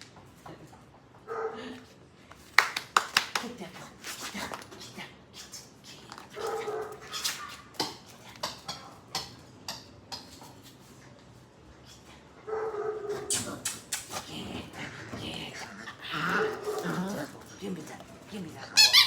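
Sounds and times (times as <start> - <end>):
puppy whining yips: 18.8 - 19.0.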